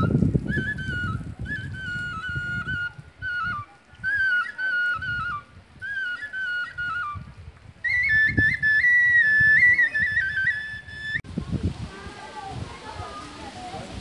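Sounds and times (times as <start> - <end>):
solo flute-like melody: 0.0 - 11.2.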